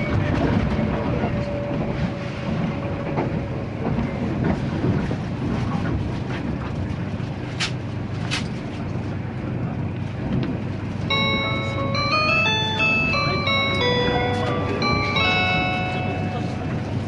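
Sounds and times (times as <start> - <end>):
train rumbling: 0.0 - 17.0
announcement chime: 11.1 - 17.0.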